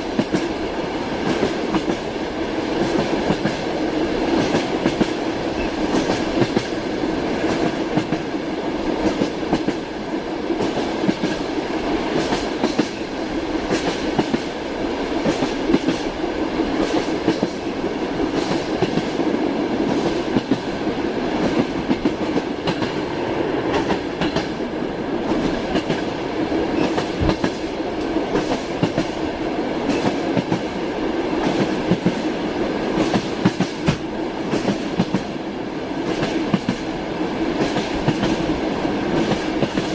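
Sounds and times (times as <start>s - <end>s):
train rolling rumble: 0.0s - 39.9s
train wheels clacking over rail joints: 4.3s - 6.7s, 26.8s - 29.2s, 33.0s - 35.3s.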